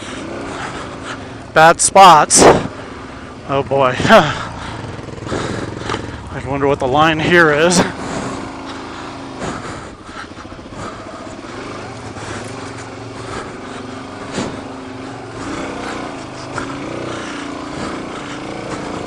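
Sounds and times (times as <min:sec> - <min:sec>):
motorcycle engine at low revs: 0:00.0 - 0:19.0.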